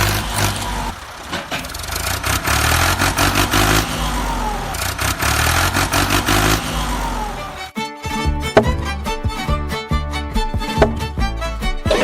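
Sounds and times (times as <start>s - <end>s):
rattling clatter: 0.0s - 7.7s
truck engine revving: 0.0s - 7.7s, 8.3s - 12.0s.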